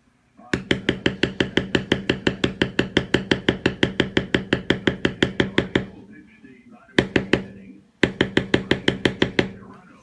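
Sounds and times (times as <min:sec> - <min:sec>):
mallet striking leather stamping tool: 0:00.6 - 0:06.0, 0:07.0 - 0:09.6.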